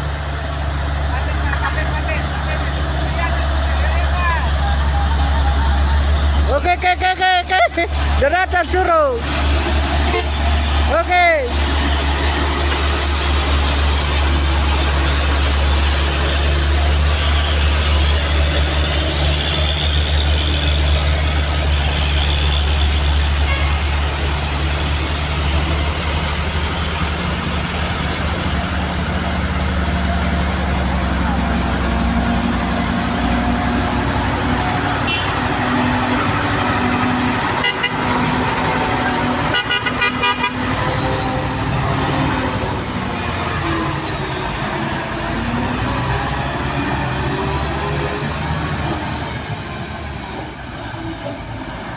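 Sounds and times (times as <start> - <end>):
truck engine running: 0.0 - 51.9
truck horn toots: 10.0 - 10.5, 21.7 - 24.0, 34.9 - 35.9, 37.4 - 41.6.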